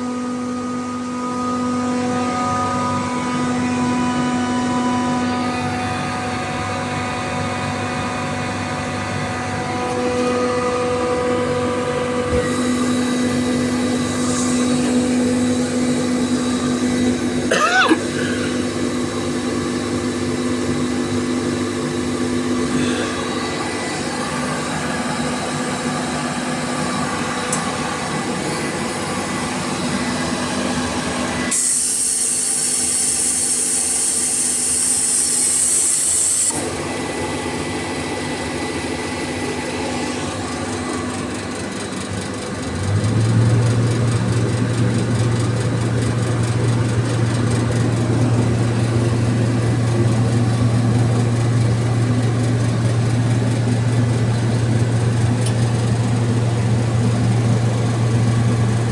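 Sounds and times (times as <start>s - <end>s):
air compressor humming: 0.0s - 58.9s
air hissing: 12.3s - 18.9s.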